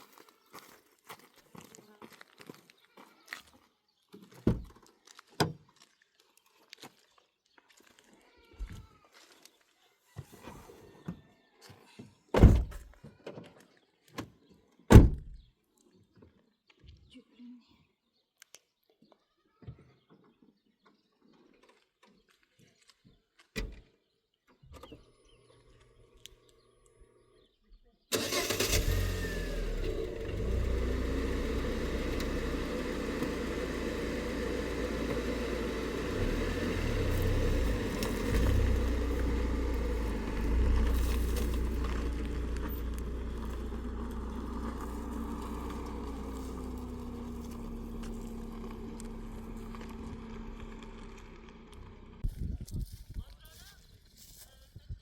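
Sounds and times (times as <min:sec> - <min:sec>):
vehicle engine low rumble: 0:28.2 - 0:53.3.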